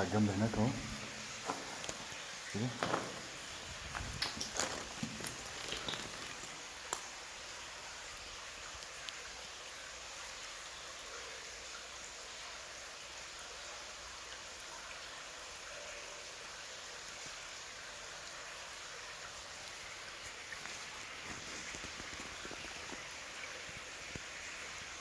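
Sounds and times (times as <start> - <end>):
stream water rushing: 0.0 - 8.0.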